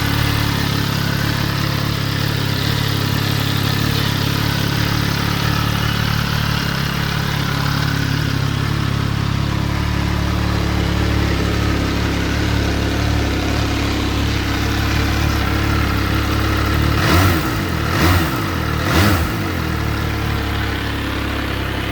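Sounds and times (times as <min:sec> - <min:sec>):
motorcycle engine idling and revving: 0:00.0 - 0:21.9.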